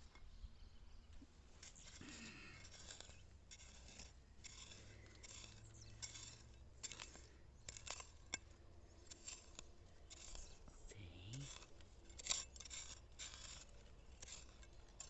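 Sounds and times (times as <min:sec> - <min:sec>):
hand tool digging into soil: 0:01.5 - 0:15.0.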